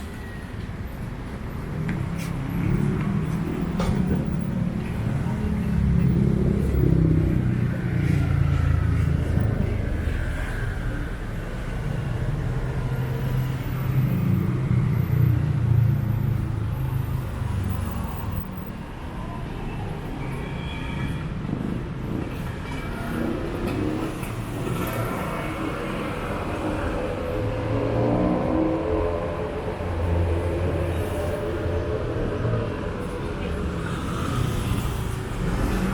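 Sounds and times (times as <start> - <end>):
vehicles passing with engine rumble: 0.0 - 35.9.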